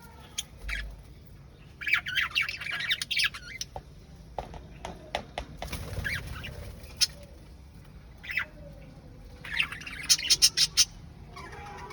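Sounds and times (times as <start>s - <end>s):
parrot chirping and squawking: 1.8s - 3.7s, 9.4s - 11.9s.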